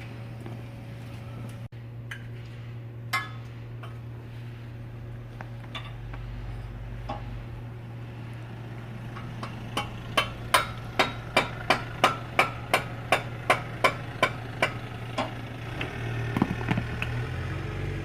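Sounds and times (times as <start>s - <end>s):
car engine idling: 3.2s - 17.4s.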